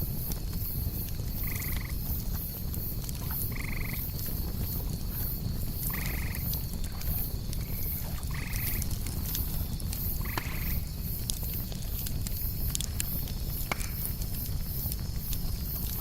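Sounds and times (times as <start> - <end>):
campfire crackling: 0.0 - 16.0
crickets chirping: 0.0 - 16.0
fire pops: 0.0 - 16.0.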